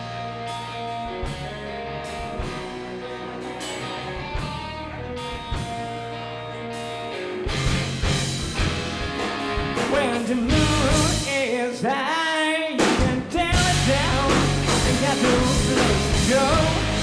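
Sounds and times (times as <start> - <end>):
guitars and bass holding notes: 0.0 - 12.1, 12.9 - 17.0
drum kit beat: 7.5 - 12.1, 12.8 - 17.0.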